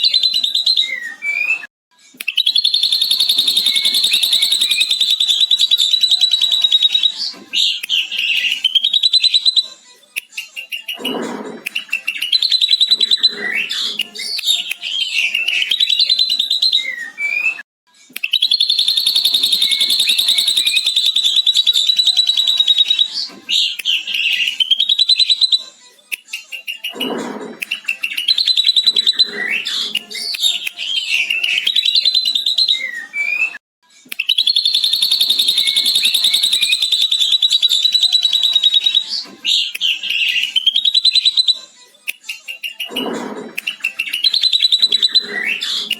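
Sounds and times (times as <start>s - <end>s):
bird chattering trill: 2.5s - 7.0s, 18.4s - 22.5s, 34.4s - 39.0s.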